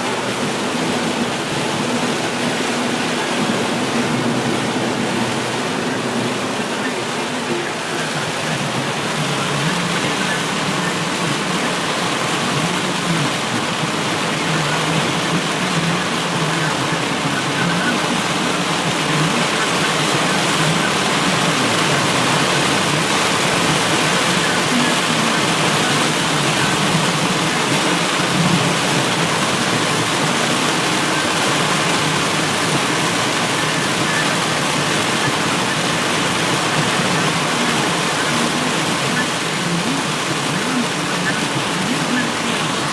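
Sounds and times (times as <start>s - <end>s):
heavy rain: 0.0s - 42.9s
running water: 0.0s - 42.9s.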